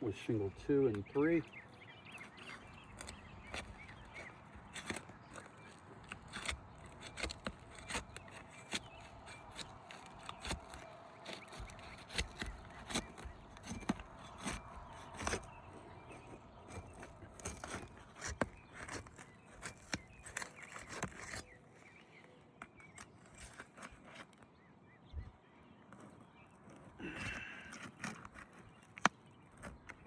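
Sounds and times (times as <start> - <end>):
scraping and crackling: 0.2 - 24.6, 25.8 - 30.0
tool prying roof shingles apart: 2.2 - 21.6, 27.0 - 30.0.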